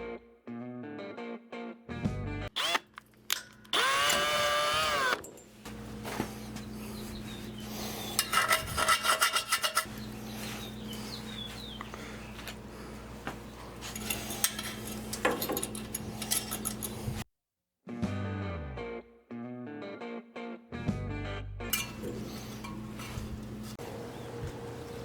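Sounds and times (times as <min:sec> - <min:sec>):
electric drill running: 0:02.5 - 0:02.9, 0:03.7 - 0:05.2
drill bit scraping metal: 0:08.1 - 0:10.0.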